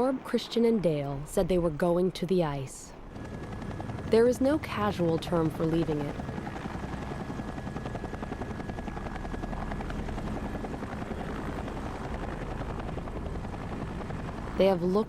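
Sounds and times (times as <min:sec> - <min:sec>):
helicopter rotor chopping: 0:00.0 - 0:15.0.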